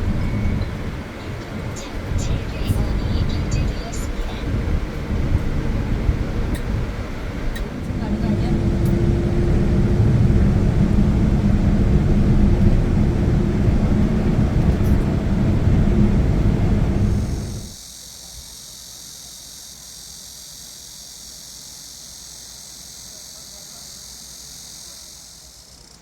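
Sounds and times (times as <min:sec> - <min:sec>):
van road and engine rumble: 0:00.0 - 0:17.8
insects buzzing: 0:00.0 - 0:26.0.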